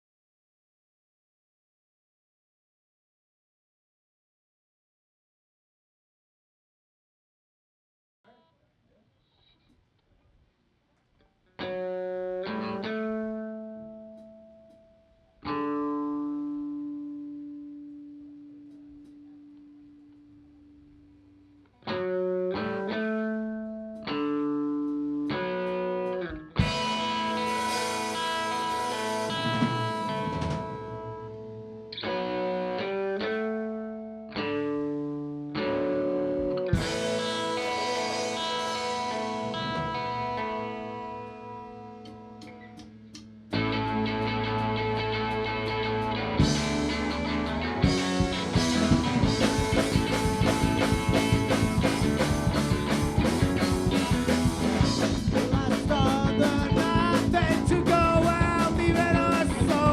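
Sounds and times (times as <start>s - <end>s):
guitar chords strummed: 11.6s - 59.9s
live band music: 26.6s - 31.6s, 36.3s - 41.3s, 43.5s - 59.9s.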